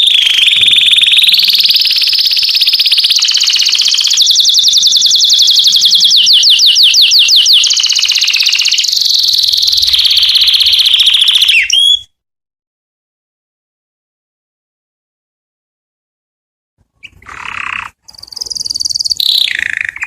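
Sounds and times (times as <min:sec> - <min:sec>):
canary singing trills: 0:00.0 - 0:12.1, 0:17.0 - 0:20.0.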